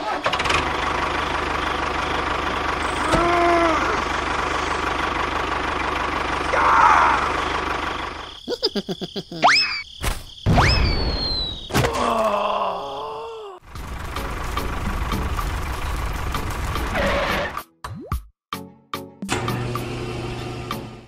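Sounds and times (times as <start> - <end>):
engine running with even knock: 13.7 - 17.0.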